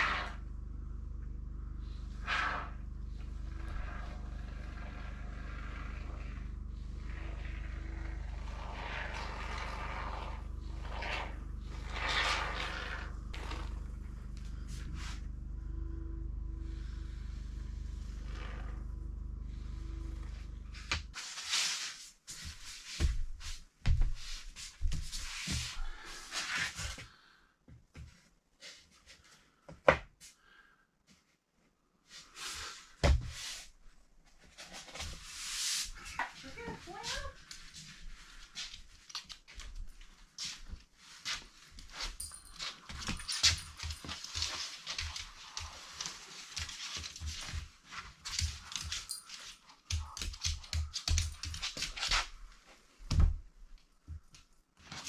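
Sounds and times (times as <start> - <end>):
scuffs clicks and knocks on floor: 22.3 - 27.1, 36.1 - 53.4.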